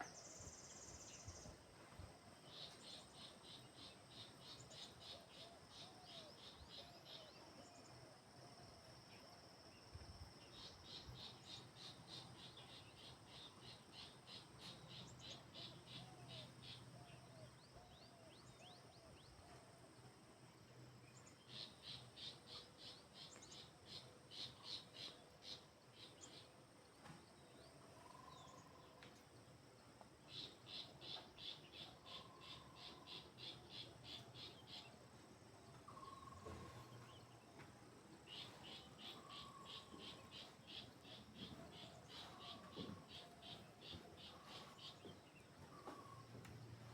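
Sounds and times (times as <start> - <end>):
shrill pulsing insect call: 30.3 - 35.0, 35.9 - 37.0, 38.3 - 45.0.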